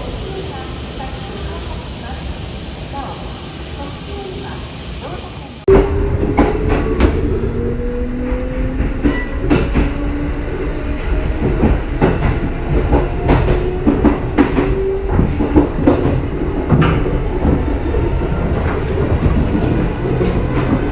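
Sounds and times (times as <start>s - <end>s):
train wheels clacking over rail joints: 8.3s - 10.0s, 11.3s - 20.9s.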